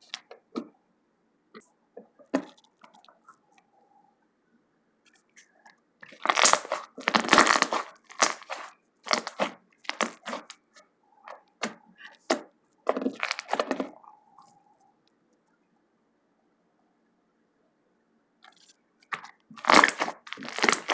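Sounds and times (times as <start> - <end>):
slime squishing and crackling: 6.0 - 10.7, 11.6 - 14.0, 19.1 - 20.9.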